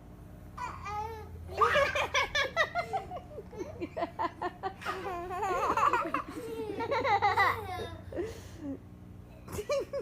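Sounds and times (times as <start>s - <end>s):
baby laughing: 0.6s - 4.1s, 4.8s - 8.1s.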